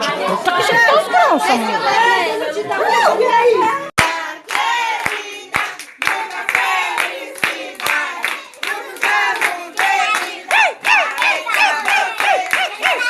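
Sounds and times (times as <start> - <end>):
voices singing together: 3.6 - 13.0
rhythmic hand claps: 4.0 - 13.0.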